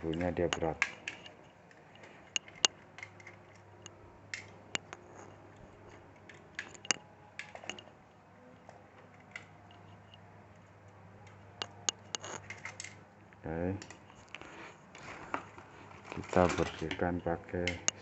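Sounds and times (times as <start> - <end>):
small clicks and taps: 0.0 - 7.9, 8.6 - 14.4.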